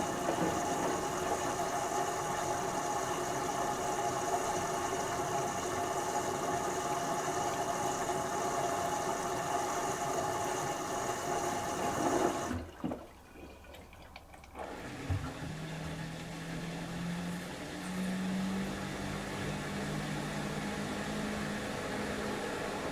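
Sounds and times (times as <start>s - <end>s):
washing machine running: 0.0s - 22.9s
water sloshing: 12.5s - 14.7s.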